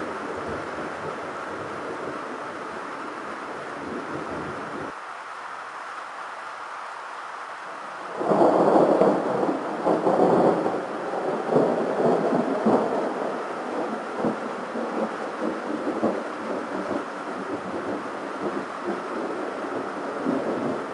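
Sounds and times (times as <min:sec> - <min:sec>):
rain hissing: 0:00.0 - 0:20.9
thunder clap and rumbling: 0:08.1 - 0:20.9.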